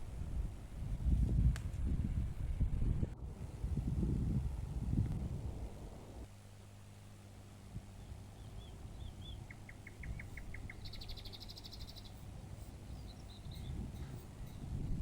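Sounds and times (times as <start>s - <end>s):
low steady hum: 0.0s - 15.0s
small birds calling: 7.8s - 14.7s
fast high bird trill: 8.4s - 14.8s.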